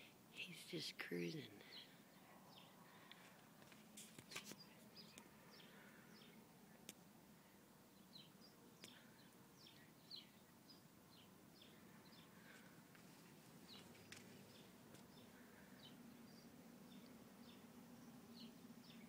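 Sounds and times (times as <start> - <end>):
small bird chirping: 4.1 - 7.0, 7.9 - 12.6, 13.6 - 19.0.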